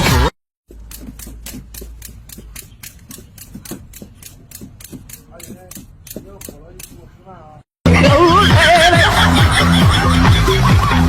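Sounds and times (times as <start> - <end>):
rapid sharp clicks: 0.7 - 7.0.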